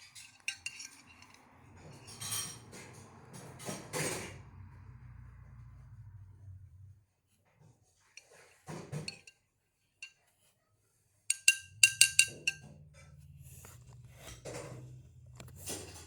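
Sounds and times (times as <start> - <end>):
clinks against glass dish: 0.2 - 2.9, 8.2 - 9.4, 11.3 - 12.8
rustle and knock: 7.4 - 9.4.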